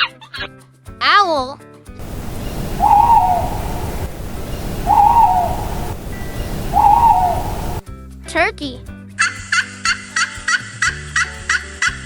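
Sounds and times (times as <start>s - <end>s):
low background noise: 2.0s - 7.8s
owl hooting: 2.0s - 7.8s.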